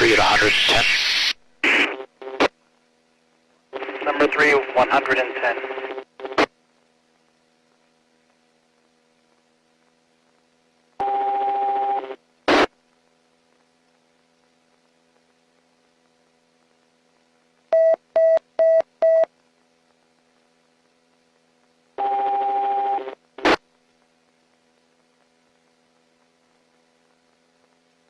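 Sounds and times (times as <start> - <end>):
buzzy radio noise: 0.0 - 17.6, 19.8 - 28.0
faint steady hum: 0.0 - 28.0
radio click: 23.4 - 23.6.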